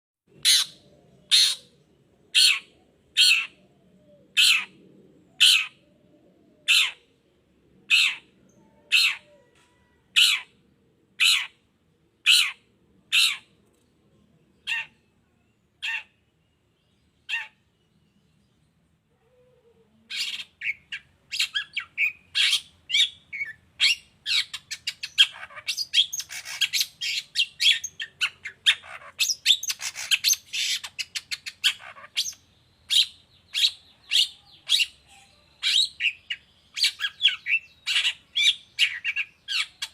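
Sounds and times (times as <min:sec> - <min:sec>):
bird giving harsh rasping calls: 0:00.4 - 0:03.6, 0:04.3 - 0:04.8, 0:05.4 - 0:05.8, 0:06.7 - 0:07.0, 0:07.9 - 0:09.3, 0:10.2 - 0:10.6, 0:11.2 - 0:11.6, 0:12.2 - 0:13.5, 0:15.8 - 0:16.2, 0:17.3 - 0:17.6, 0:20.1 - 0:35.0.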